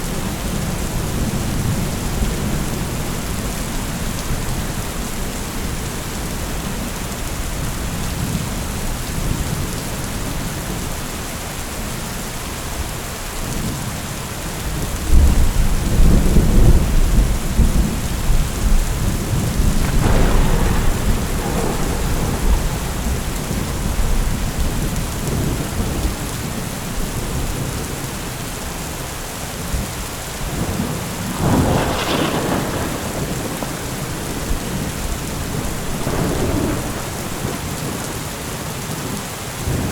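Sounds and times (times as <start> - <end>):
steady rain: 0.0 - 39.9
rolling thunder: 15.0 - 27.9, 29.8 - 38.3
sharp thunderclap: 15.1 - 26.2, 30.5 - 38.1.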